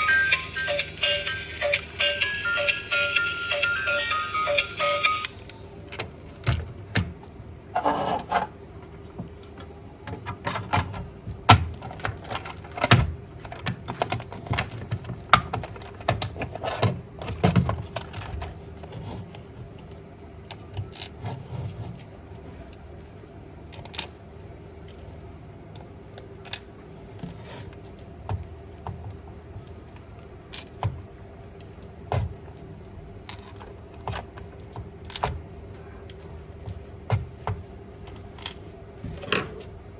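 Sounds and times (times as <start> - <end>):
faint steady hum: 0.0 - 6.4.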